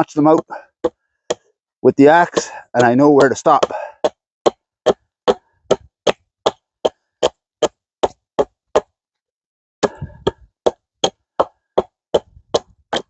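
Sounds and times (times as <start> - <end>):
axe chopping log: 2.1 - 8.9, 9.8 - 13.0.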